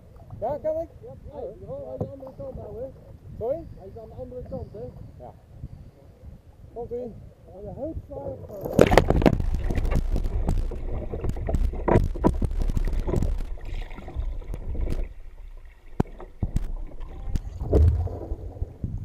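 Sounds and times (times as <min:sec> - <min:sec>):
wind on microphone: 0:00.0 - 0:19.0
water splashing around kayaks: 0:06.4 - 0:19.0
knocks on kayaks: 0:08.7 - 0:13.5, 0:16.0 - 0:18.4.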